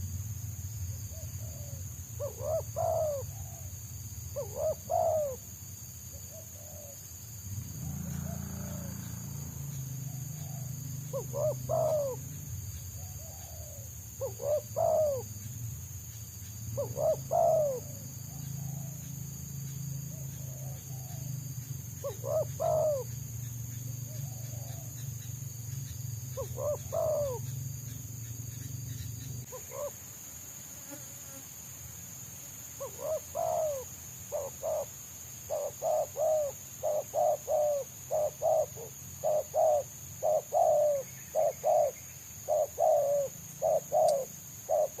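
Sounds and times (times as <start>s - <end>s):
doves cooing: 1.1s - 3.8s, 4.4s - 5.5s, 6.3s - 15.4s, 16.7s - 19.2s, 20.1s - 25.1s, 26.3s - 27.9s, 29.2s - 30.1s, 32.8s - 45.0s.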